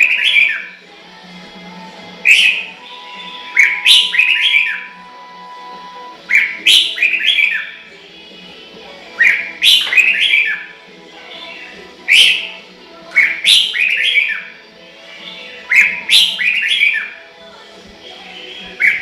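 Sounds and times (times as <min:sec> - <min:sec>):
bird singing whistled phrases: 0:00.0 - 0:00.8, 0:02.3 - 0:05.0, 0:06.3 - 0:07.8, 0:09.2 - 0:10.7, 0:12.1 - 0:12.5, 0:13.1 - 0:14.5, 0:15.3 - 0:17.2, 0:18.5 - 0:19.0.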